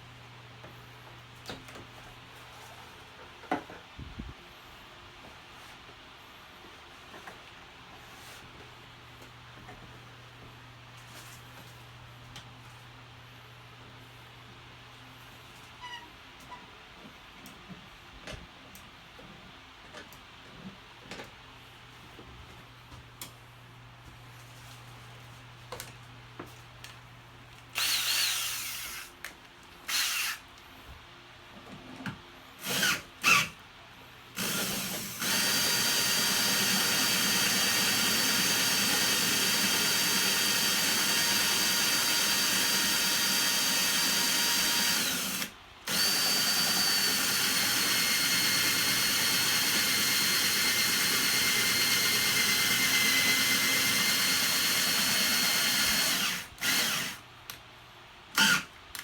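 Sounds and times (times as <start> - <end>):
power tool motor whining: 34.4 - 57.2, 58.4 - 58.7.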